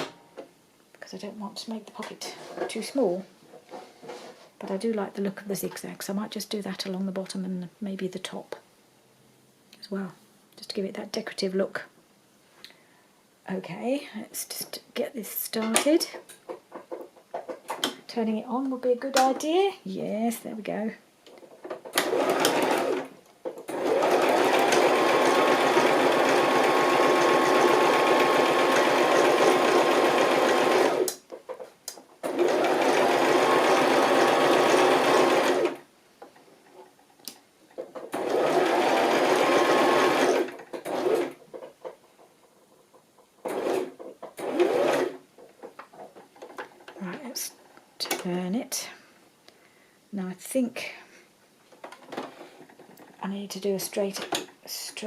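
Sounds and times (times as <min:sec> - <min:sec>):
electric sewing machine stitching: 0:21.8 - 0:31.2, 0:32.2 - 0:35.8, 0:38.0 - 0:41.5, 0:43.4 - 0:45.2.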